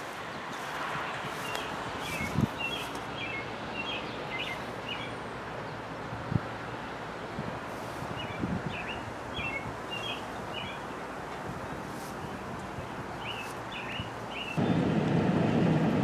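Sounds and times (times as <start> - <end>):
small birds chirping: 0.0 - 6.0, 7.7 - 11.1, 11.7 - 14.8
outdoor background hiss: 0.0 - 16.0.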